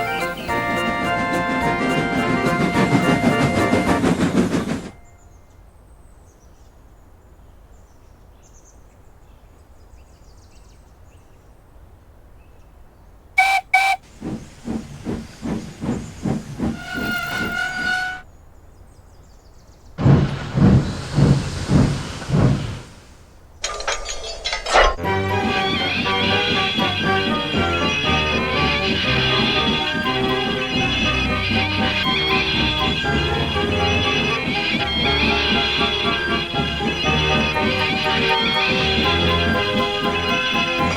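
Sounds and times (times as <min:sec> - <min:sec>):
steam locomotive chuffing: 0:00.0 - 0:05.1, 0:13.4 - 0:18.2, 0:20.0 - 0:23.8, 0:25.0 - 0:40.9
steam locomotive whistle: 0:00.0 - 0:05.1, 0:13.4 - 0:14.1, 0:16.7 - 0:18.2, 0:25.0 - 0:40.9.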